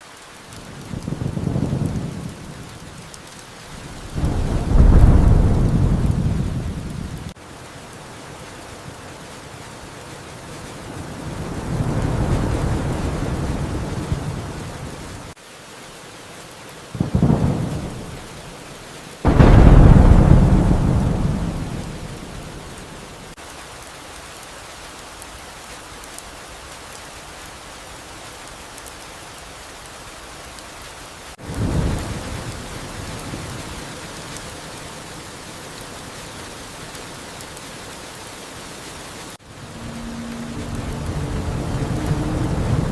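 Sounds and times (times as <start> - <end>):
steady rain: 0.0 - 42.9
thunder claps: 0.6 - 15.4, 19.3 - 23.4, 39.4 - 42.9.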